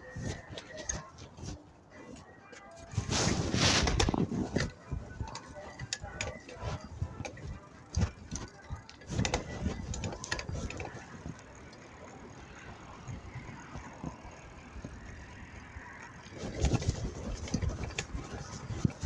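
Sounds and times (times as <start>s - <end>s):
road and traffic noise: 0.0s - 19.0s
bicycle rattling knocks: 3.8s - 19.0s.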